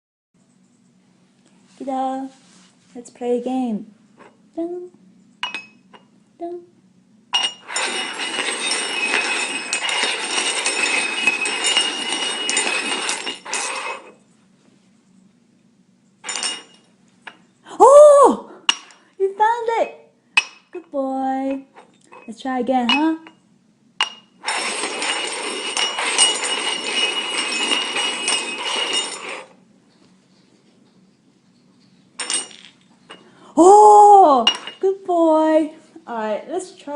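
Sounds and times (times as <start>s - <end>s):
cups clinking: 5.4s - 6.1s, 7.4s - 14.1s, 18.7s - 19.1s, 22.9s - 23.4s, 24.0s - 29.6s, 32.2s - 33.4s, 34.4s - 34.9s
cups scraping on tabletop: 7.4s - 14.2s, 24.4s - 29.6s.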